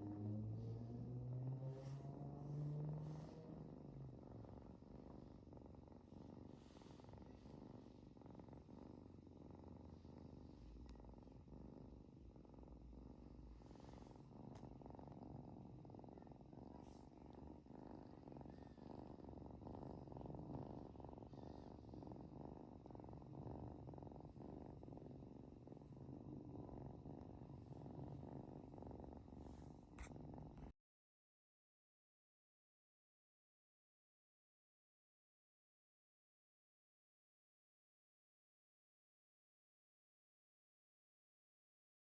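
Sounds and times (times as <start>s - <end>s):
cat purring: 0.0s - 30.8s.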